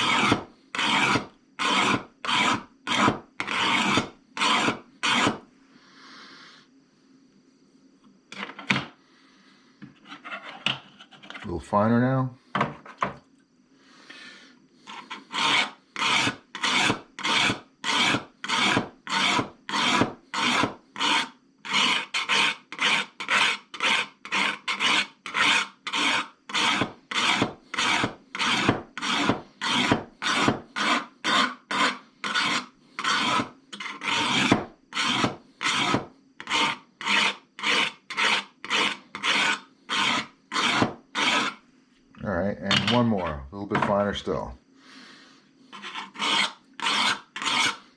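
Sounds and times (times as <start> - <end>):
hone rasping on steel blade: 0.0 - 5.4, 14.8 - 41.6, 45.7 - 47.9.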